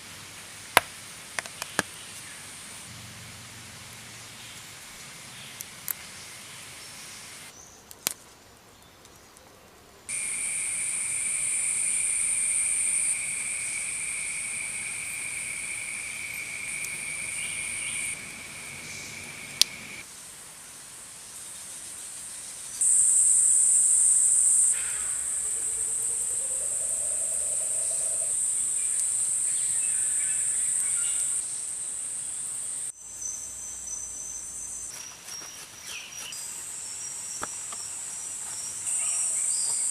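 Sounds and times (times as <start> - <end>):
insects chirring: 10.1 - 20.0, 22.0 - 39.9.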